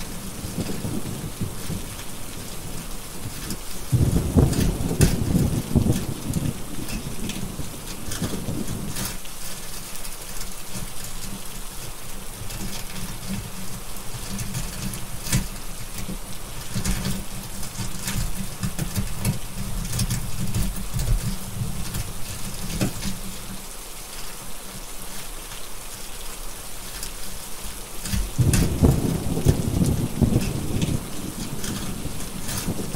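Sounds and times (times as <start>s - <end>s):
low thunder rumble: 0.0s - 9.2s, 28.1s - 32.9s
fireplace crackling: 0.0s - 32.9s
steady rain: 0.0s - 32.9s.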